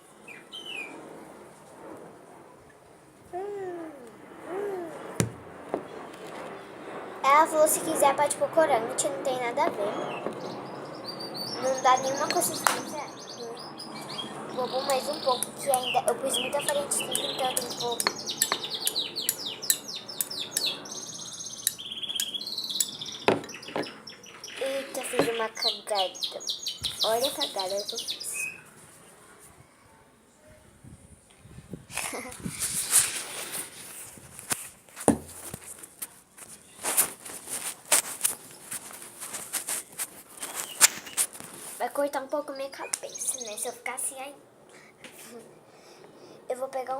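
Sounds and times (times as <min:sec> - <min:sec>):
small bird singing: 0:00.3 - 0:00.9, 0:09.9 - 0:28.7, 0:40.4 - 0:41.2, 0:42.5 - 0:43.9.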